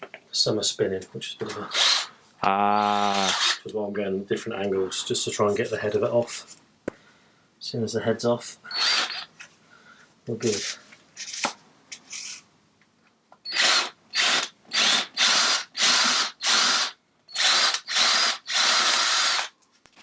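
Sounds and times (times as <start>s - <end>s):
power drill drilling rivets: 1.5s - 2.1s, 3.3s - 3.6s, 8.8s - 9.3s, 13.4s - 19.5s.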